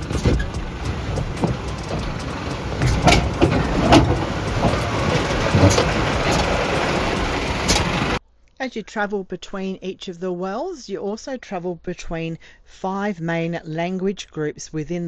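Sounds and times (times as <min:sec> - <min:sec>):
sharp knocks and rattles: 0:00.0 - 0:08.2
vehicle engine and road rumble: 0:00.0 - 0:08.2.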